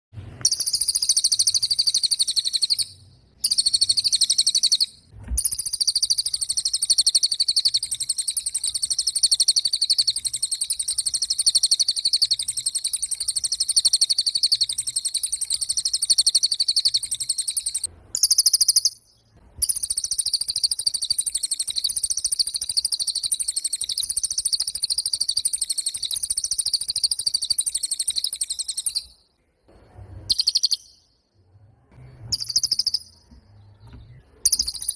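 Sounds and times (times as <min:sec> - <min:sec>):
bird trilling rapidly: 0:00.4 - 0:19.0, 0:19.6 - 0:29.2, 0:30.3 - 0:31.1, 0:32.3 - 0:33.3, 0:34.4 - 0:34.9.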